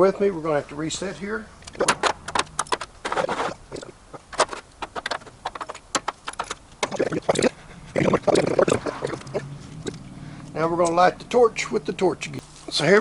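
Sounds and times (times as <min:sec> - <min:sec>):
tools and metal knocking and scraping: 0:01.6 - 0:06.6.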